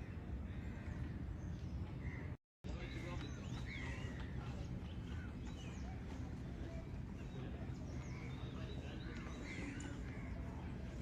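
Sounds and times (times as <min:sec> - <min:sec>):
birds chirping and whistling: 0:00.6 - 0:11.0.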